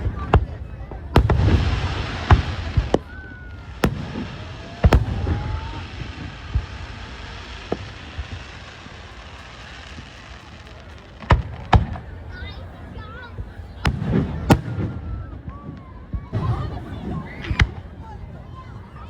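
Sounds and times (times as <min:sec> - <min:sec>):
firework shells booming: 0:01.1 - 0:12.2.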